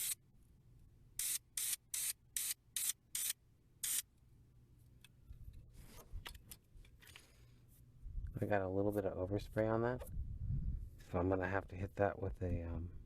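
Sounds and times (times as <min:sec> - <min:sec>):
spray paint can hissing: 0:00.0 - 0:00.2, 0:01.2 - 0:04.1.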